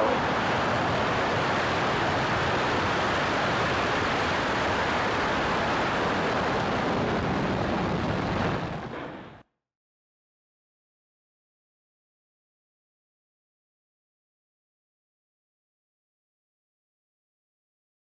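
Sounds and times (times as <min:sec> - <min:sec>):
rocket engines roaring: 0:00.0 - 0:09.4.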